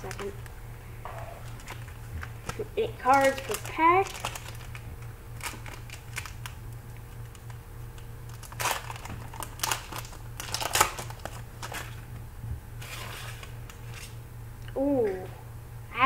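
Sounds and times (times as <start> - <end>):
foil wrapper crinkling: 0.0 - 0.6, 1.4 - 12.1, 12.8 - 14.2
low hum: 0.0 - 16.0.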